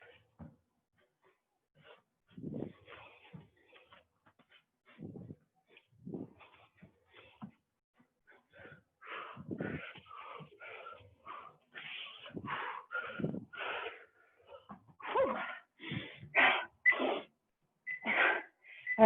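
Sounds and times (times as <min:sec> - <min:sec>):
person breathing hard: 0:08.2 - 0:17.3.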